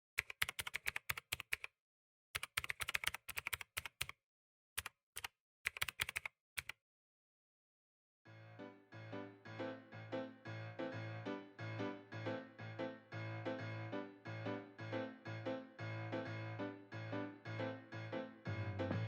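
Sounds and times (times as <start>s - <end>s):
keyboard key clicks: 4.8s - 6.8s
music: 8.3s - 19.0s.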